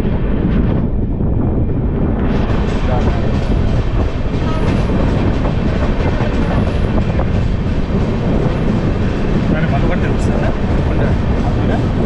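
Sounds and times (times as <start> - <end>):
train clatter: 0.0 - 12.0
train wheels rumbling on track: 0.0 - 12.0.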